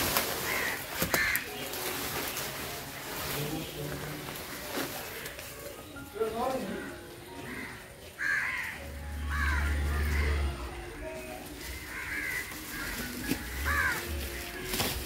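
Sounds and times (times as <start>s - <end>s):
bird calling: 6.6s - 10.9s.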